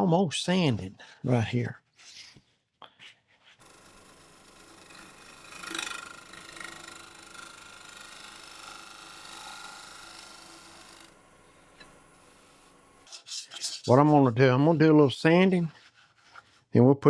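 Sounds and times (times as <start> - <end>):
wood lathe humming: 3.6 - 13.1.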